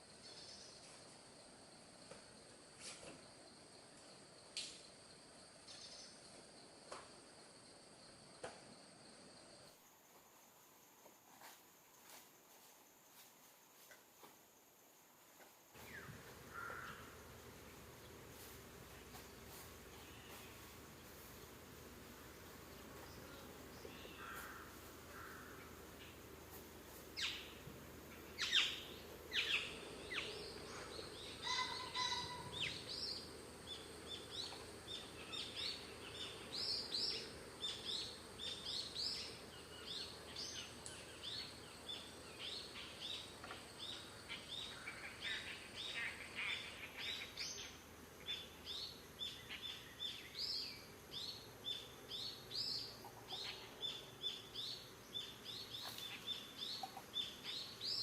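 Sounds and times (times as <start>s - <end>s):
birds chirping: 15.8s - 58.0s
loud sharp bird calls: 28.4s - 33.2s.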